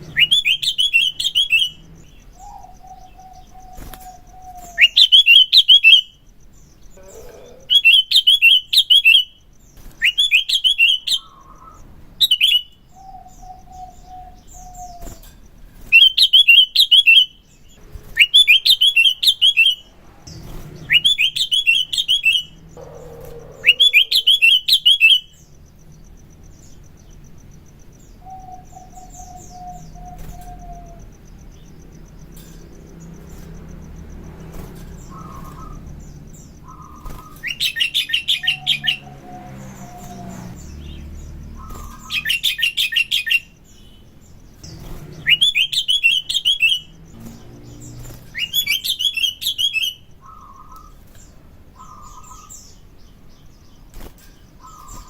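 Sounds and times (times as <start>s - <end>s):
bird rapid high chattering: 0.0s - 25.5s, 26.3s - 55.0s
bird slurred warbling: 6.9s - 8.6s, 18.2s - 25.3s.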